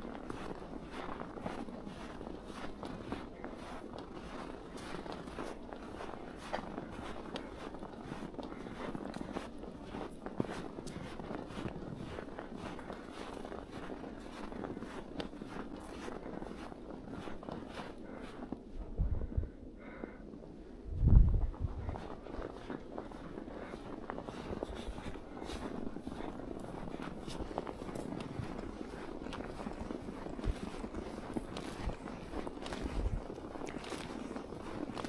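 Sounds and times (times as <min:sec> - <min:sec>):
footsteps crunching through snow: 0:00.0 - 0:18.9, 0:21.4 - 0:35.0
wind thumps on microphone: 0:18.8 - 0:19.6, 0:20.8 - 0:22.2.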